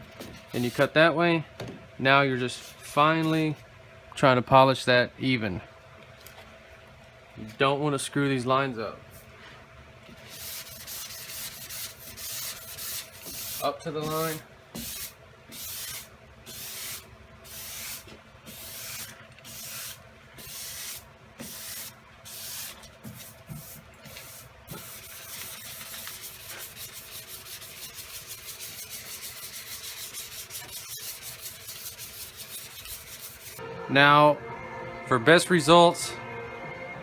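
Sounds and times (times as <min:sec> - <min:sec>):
sandpaper rubbing on steel: 0:10.2 - 0:33.6.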